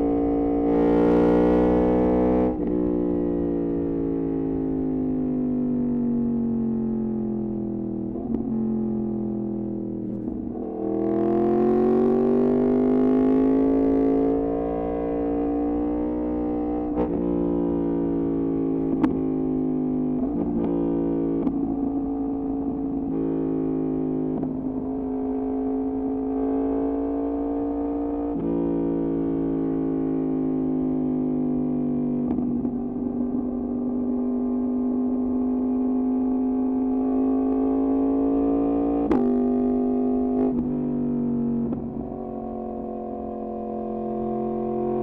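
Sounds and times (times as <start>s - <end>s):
motorcycle engine running: 40.5s - 45.0s.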